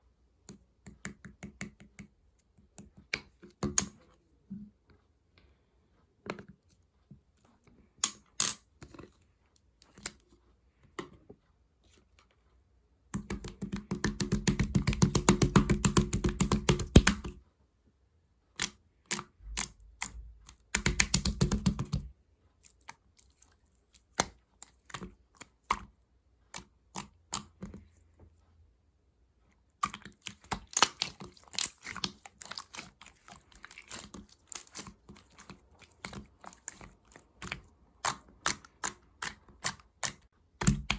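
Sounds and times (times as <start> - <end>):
slime rapid crackling: 30.1 - 40.9.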